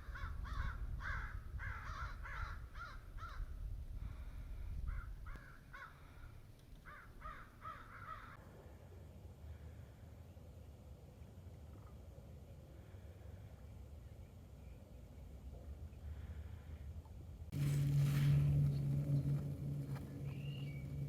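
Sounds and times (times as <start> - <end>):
crows cawing: 0.0 - 3.5, 4.9 - 8.4
low rumble: 17.3 - 21.0.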